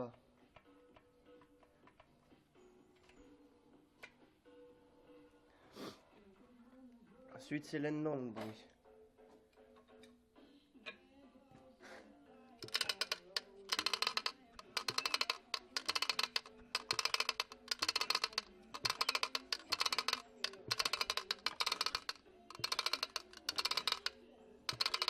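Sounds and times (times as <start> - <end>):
rapid clicking rattling in tiller: 12.6 - 25.0.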